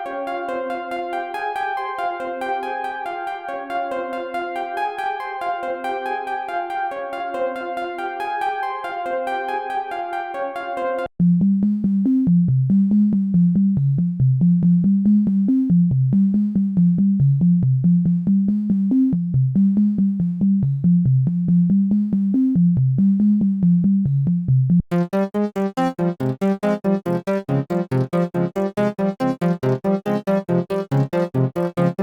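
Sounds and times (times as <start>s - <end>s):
choppy pulsing synth: 24.9s - 32.0s
synthesizer bass sequence: 24.9s - 32.0s.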